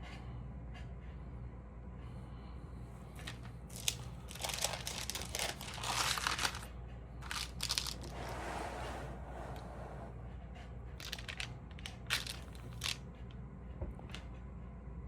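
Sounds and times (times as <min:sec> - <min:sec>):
paper sleeves crinkling: 0:03.2 - 0:08.2.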